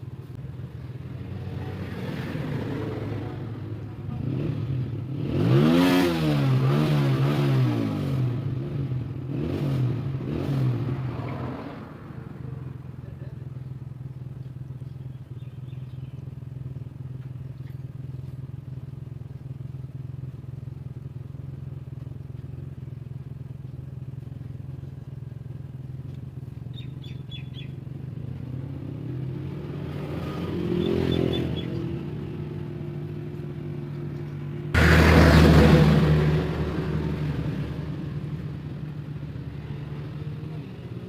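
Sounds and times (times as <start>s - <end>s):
motorcycle engine idling: 0.0s - 5.2s, 12.0s - 29.7s, 36.5s - 41.0s
bird chirps: 14.8s - 16.4s, 26.7s - 27.8s, 30.7s - 32.0s.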